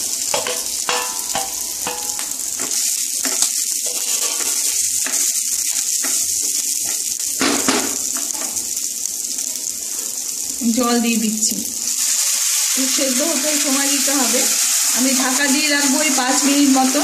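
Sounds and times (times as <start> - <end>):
oil sizzling in a pan: 0.0 - 17.0
spatula scraping and clacking: 0.4 - 7.1.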